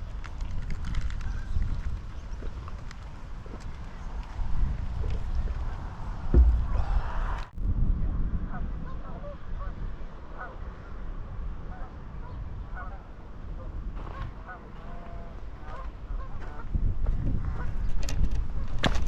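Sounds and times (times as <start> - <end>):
steady low rumble: 3.9 - 8.4.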